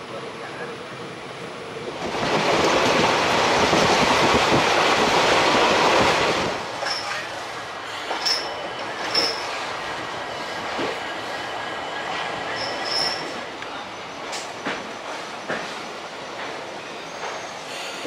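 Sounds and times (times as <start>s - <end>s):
train wheel and track noise: 0.0s - 18.0s
high-pitched wheel squeals: 12.4s - 13.4s.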